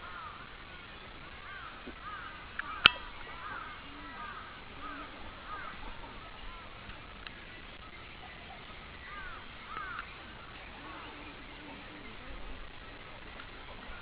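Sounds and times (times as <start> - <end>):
cormorants calling: 0.0 - 14.0.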